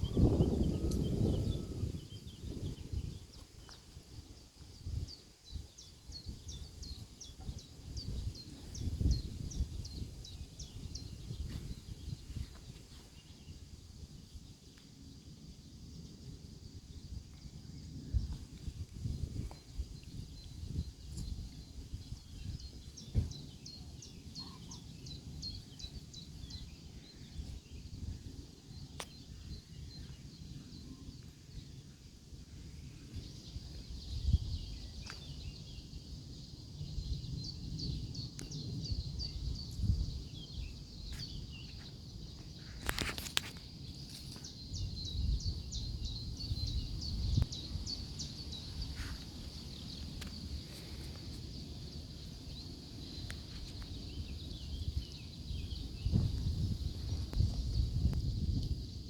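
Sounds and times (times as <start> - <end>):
small birds chirping: 19.4 - 32.1, 32.7 - 59.0.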